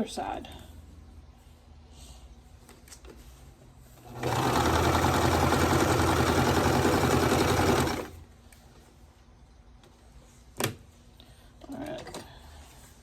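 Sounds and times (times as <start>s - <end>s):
sewing machine stitching: 4.0s - 8.2s.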